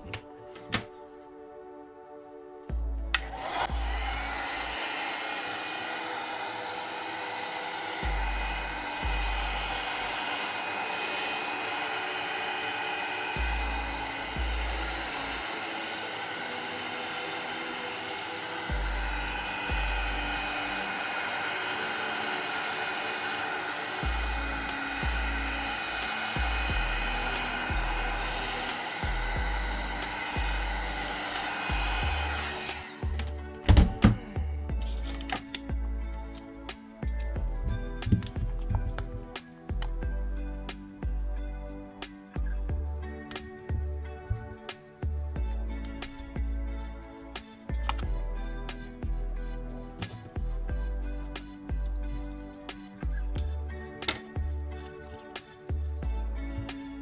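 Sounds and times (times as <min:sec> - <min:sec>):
background music with bass line: 0:00.0 - 0:04.8, 0:08.0 - 0:10.4, 0:13.4 - 0:15.6, 0:18.6 - 0:21.1, 0:24.0 - 0:57.0
heat gun blowing: 0:03.2 - 0:34.2.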